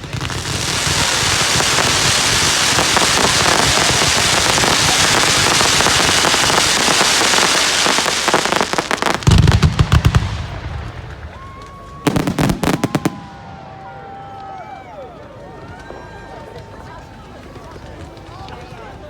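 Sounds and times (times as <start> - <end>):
loud fireworks bangs: 0.0 - 14.6
fireworks crackling: 0.0 - 16.0.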